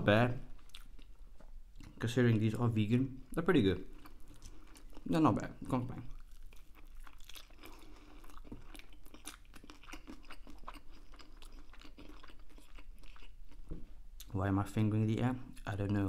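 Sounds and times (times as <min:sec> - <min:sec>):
person chewing food: 0:00.5 - 0:02.0, 0:03.8 - 0:05.1, 0:06.0 - 0:14.3.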